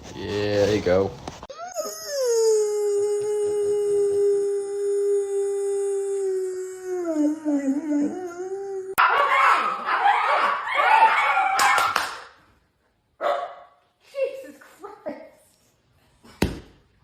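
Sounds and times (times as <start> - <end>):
dog howling: 1.5 - 11.9.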